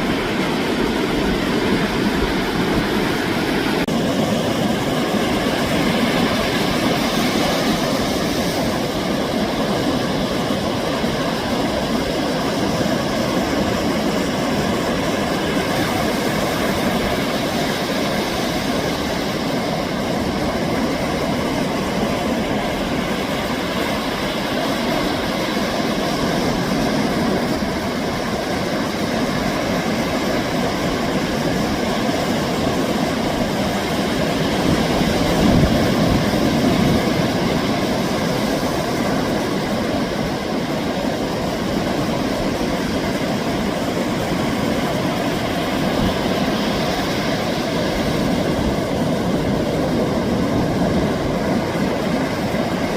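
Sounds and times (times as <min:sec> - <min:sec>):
ocean waves breaking on beach: 0:00.0 - 0:52.9.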